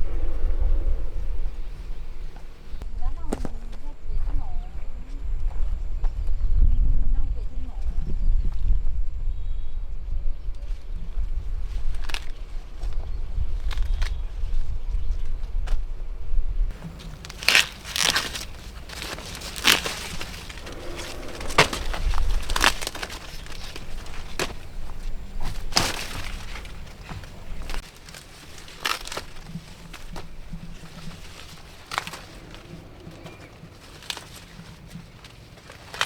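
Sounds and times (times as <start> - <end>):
leaves rustling: 0.0 - 2.8, 16.7 - 36.0
corn ears snapping: 16.7 - 36.0.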